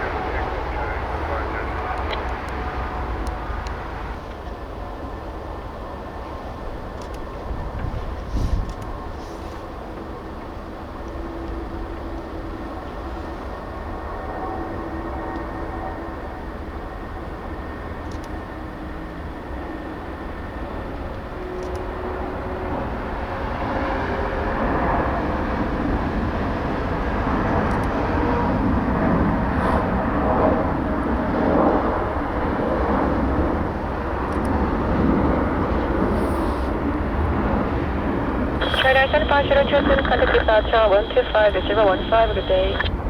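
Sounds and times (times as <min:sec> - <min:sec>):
jet airliner taking off: 0:00.0 - 0:43.0
wind rumbling on microphone: 0:06.3 - 0:11.1.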